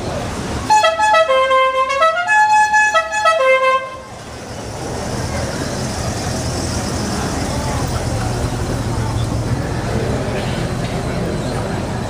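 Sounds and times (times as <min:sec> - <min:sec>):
traffic and engine noise: 0:00.0 - 0:12.0
musical car horn tune: 0:00.7 - 0:04.1.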